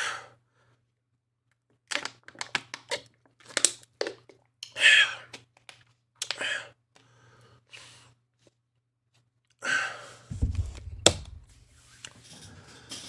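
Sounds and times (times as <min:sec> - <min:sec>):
sharp knock: 0:10.3 - 0:11.8
low thumps: 0:10.3 - 0:11.9.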